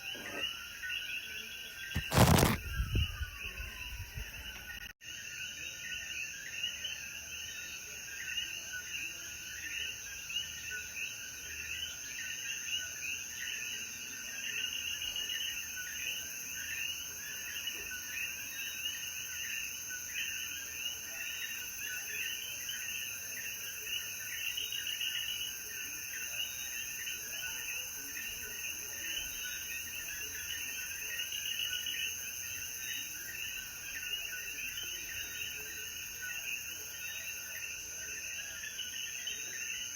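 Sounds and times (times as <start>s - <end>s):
high insect hum: 0.0s - 5.2s.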